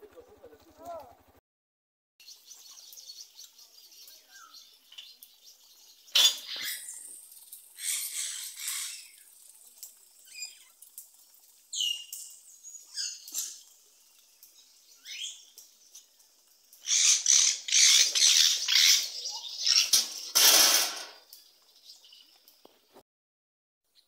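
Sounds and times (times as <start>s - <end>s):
bird chirps: 2.2s - 7.2s, 10.2s - 10.8s, 11.7s - 13.8s, 14.5s - 16.1s, 16.8s - 20.4s
harsh rasping bird calls: 2.2s - 10.9s, 11.6s - 16.1s, 16.7s - 22.3s.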